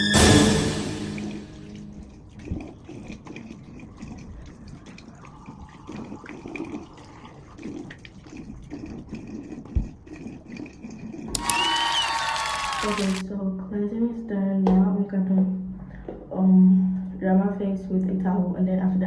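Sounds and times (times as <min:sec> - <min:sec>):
tap water running and splashing: 0:01.1 - 0:13.2.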